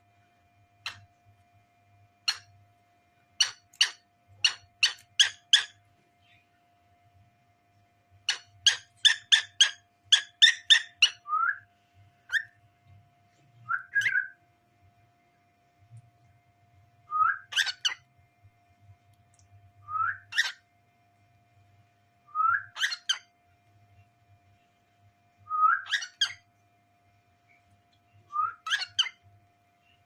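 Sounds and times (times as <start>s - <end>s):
cockatiel chirping: 2.3s - 2.5s, 3.4s - 5.8s, 8.3s - 11.3s, 12.3s - 12.6s, 13.8s - 14.3s, 17.2s - 18.0s, 20.1s - 20.6s, 22.6s - 23.3s, 25.6s - 26.4s, 28.6s - 29.2s
cockatiel whistling: 13.7s - 14.4s, 17.1s - 18.0s, 19.9s - 20.6s, 22.4s - 23.2s, 25.5s - 26.4s, 28.3s - 29.1s.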